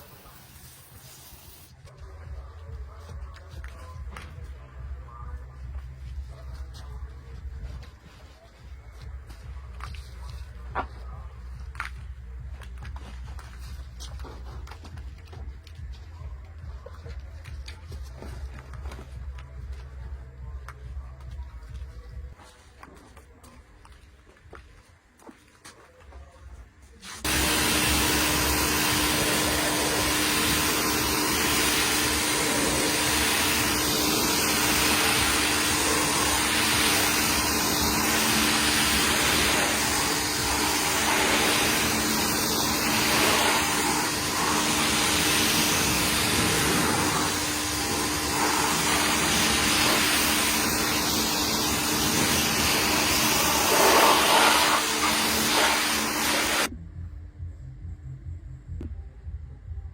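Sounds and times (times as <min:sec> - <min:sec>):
cleaning machine rushing hiss: 0:00.0 - 0:01.8, 0:27.2 - 0:56.7.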